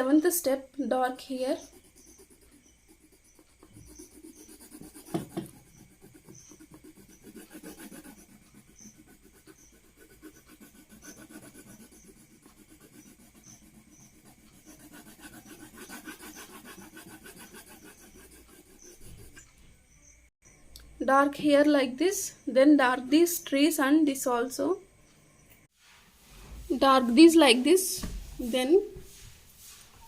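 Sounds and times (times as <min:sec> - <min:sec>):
pencil shading on paper: 0:01.0 - 0:19.5
thump: 0:28.0 - 0:28.4.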